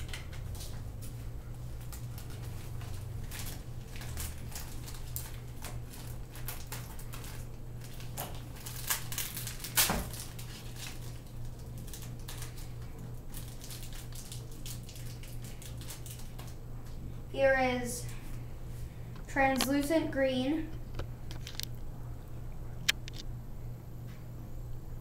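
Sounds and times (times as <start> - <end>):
plastic packaging crinkling: 0.0 - 17.0, 21.2 - 21.8
low steady hum: 0.0 - 25.0
small plastic parts clicking: 22.8 - 23.2.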